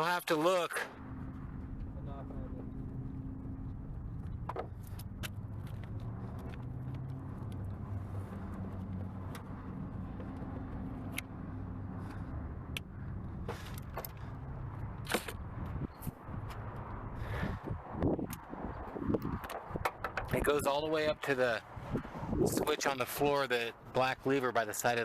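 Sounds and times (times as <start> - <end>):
low engine hum: 0.9 - 20.6
clicks and taps of car parts: 4.2 - 7.6, 19.3 - 20.5.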